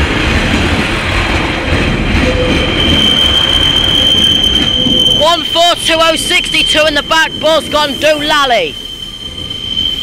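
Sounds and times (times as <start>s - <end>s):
diesel train passing: 0.0s - 10.0s
high-pitched wheel squeal: 2.3s - 10.0s.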